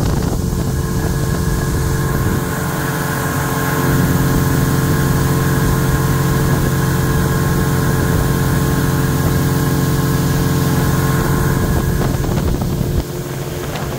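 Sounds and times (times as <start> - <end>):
boat engine humming: 0.0 - 13.9.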